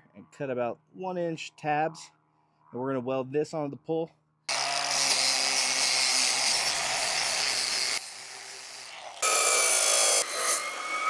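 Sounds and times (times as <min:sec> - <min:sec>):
power tool cutting steel: 0:04.5 - 0:11.0.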